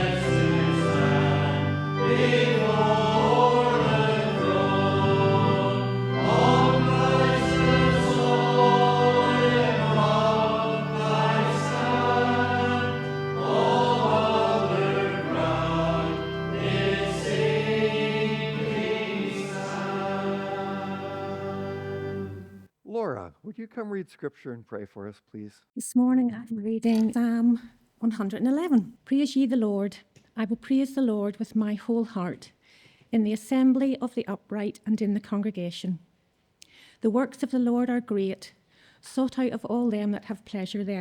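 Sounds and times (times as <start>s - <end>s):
congregation singing a hymn: 0.0s - 22.6s
instrumental accompaniment: 0.0s - 22.7s.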